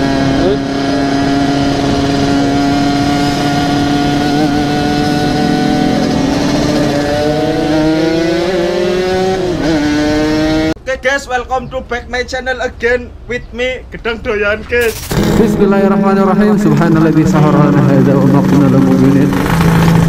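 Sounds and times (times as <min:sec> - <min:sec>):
two-stroke motorcycle engine revving: 0:00.0 - 0:10.8, 0:14.9 - 0:20.0.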